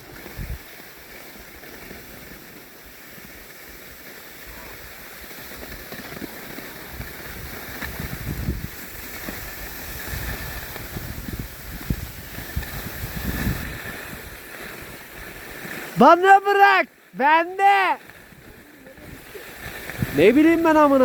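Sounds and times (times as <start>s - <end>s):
skis scraping over snow: 0.0s - 21.0s
wind gusting on microphone: 0.3s - 0.6s, 6.9s - 15.6s, 18.2s - 21.0s.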